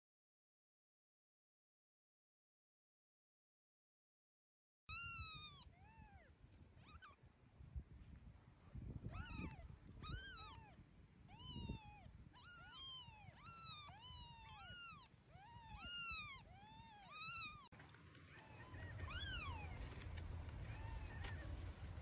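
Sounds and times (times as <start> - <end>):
kittens mewing: 4.9 - 7.2, 9.0 - 17.7, 18.3 - 21.9.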